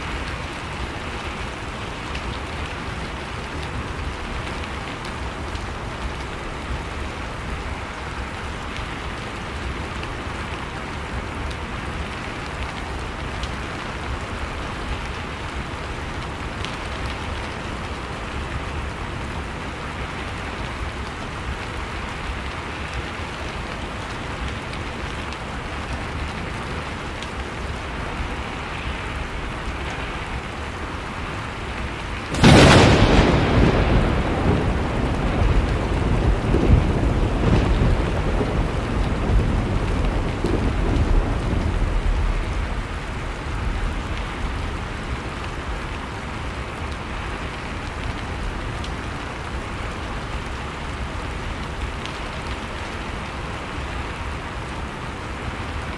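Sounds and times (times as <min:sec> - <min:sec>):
heavy rain falling: 0:00.0 - 0:55.9
loud thunderclap rumbling: 0:32.2 - 0:45.8.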